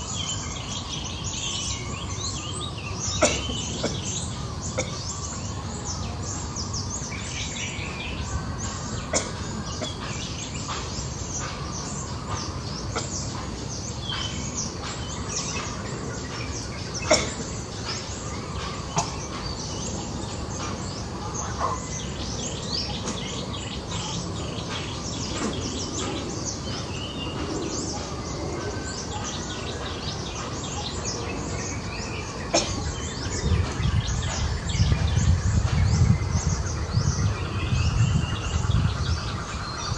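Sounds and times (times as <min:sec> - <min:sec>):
small birds chirping: 0:00.0 - 0:39.9
steady low rumble: 0:32.9 - 0:39.9.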